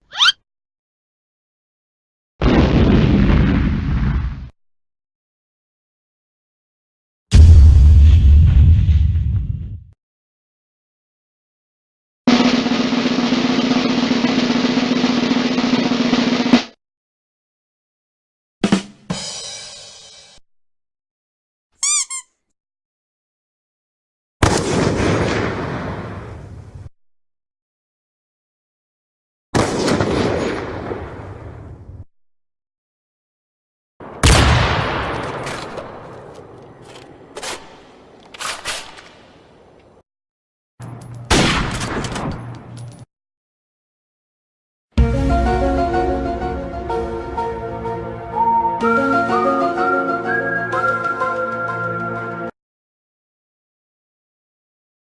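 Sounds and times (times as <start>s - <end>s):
crash hit: 7.3s - 9.6s
snare drum roll: 12.3s - 16.8s
echoing gunshots: 24.4s - 26.6s, 29.6s - 31.5s, 34.0s - 39.8s, 41.3s - 42.2s.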